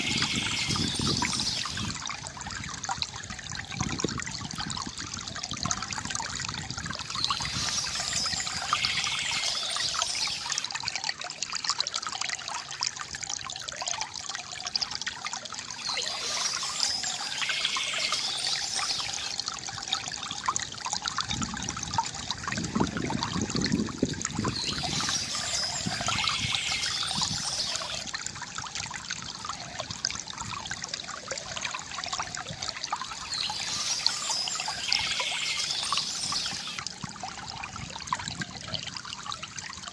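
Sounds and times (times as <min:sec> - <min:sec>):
birds chirping: 0:00.0 - 0:01.9, 0:07.0 - 0:10.6, 0:15.8 - 0:19.4, 0:24.5 - 0:28.0, 0:33.1 - 0:36.8
water trickling from bamboo fountain: 0:00.0 - 0:39.9.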